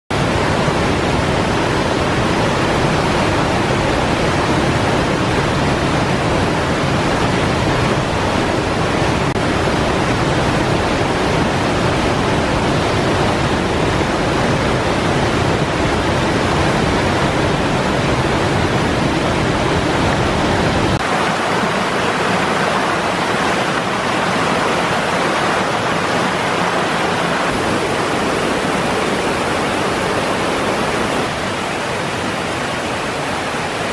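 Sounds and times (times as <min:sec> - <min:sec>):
waterfall pouring: 0:21.0 - 0:33.9.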